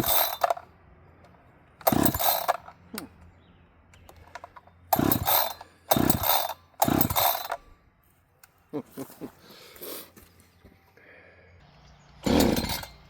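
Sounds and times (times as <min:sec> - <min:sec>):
engine turning over: 0:00.0 - 0:00.6, 0:01.8 - 0:02.7, 0:04.3 - 0:07.6, 0:12.2 - 0:13.0
recoil starter rope pulled: 0:00.0 - 0:00.6, 0:01.8 - 0:03.1, 0:04.0 - 0:07.7, 0:12.2 - 0:13.0.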